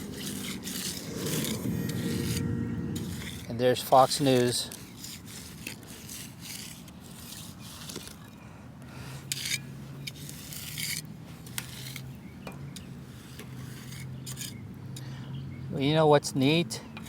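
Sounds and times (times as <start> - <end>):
shovel scraping wet concrete: 0.0 - 2.1, 3.0 - 8.2, 9.3 - 12.1, 13.1 - 14.6
low steady hum: 0.0 - 4.8.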